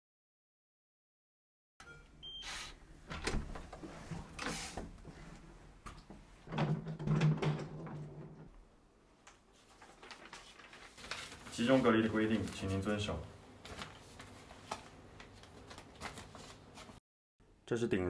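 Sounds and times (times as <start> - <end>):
keycard lock electronic beep: 1.8 - 2.6.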